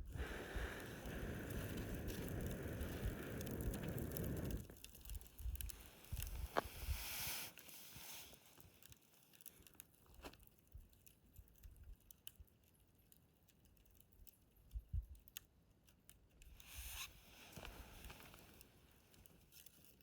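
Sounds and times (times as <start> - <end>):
fire hissing: 0.0 - 8.6, 16.6 - 18.7
wood fire crackling: 0.0 - 20.0.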